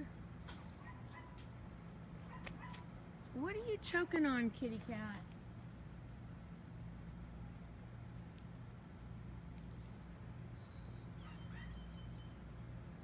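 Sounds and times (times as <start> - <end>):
steady low hum: 0.0 - 13.0
faint bird chirps: 9.8 - 12.5.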